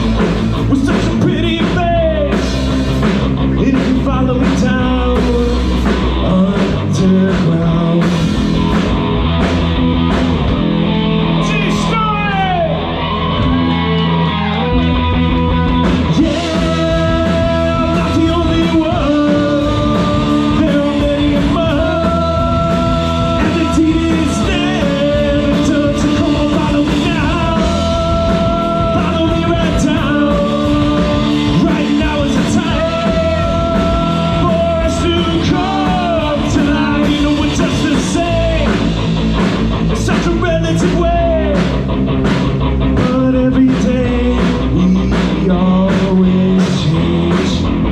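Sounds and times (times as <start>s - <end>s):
live rock band: 0.0s - 47.9s
singer holding long notes: 10.7s - 39.0s.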